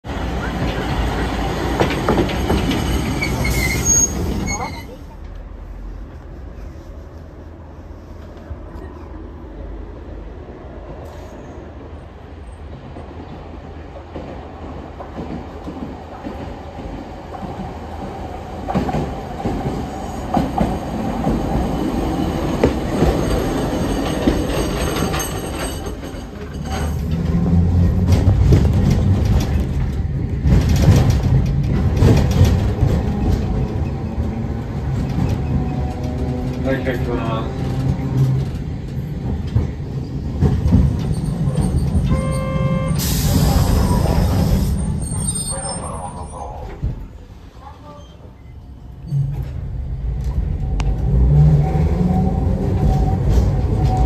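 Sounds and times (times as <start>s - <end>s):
streetcar rumbling on rails: 0.0s - 54.0s
rattling and clatter: 24.2s - 33.8s.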